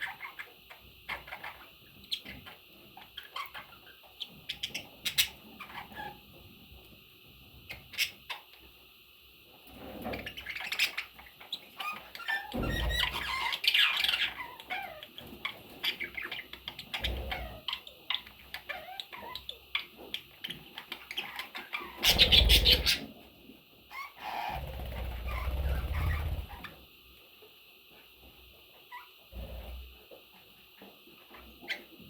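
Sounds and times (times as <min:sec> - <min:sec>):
budgerigars chirping and chattering: 0:00.0 - 0:06.2, 0:07.7 - 0:08.6, 0:10.0 - 0:23.1, 0:23.9 - 0:26.8
bird squawks: 0:21.1 - 0:23.1.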